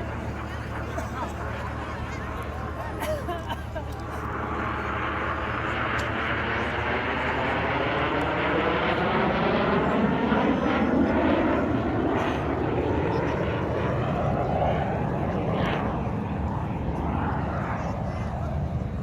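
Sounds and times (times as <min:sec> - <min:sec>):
airplane flying past: 0:00.0 - 0:19.0.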